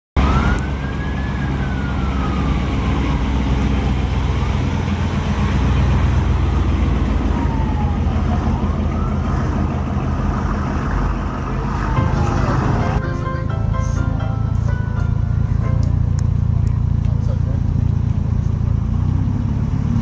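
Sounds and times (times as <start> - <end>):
faint wailing siren: 0.2 - 13.1
vehicle engine rumbling: 0.2 - 20.0.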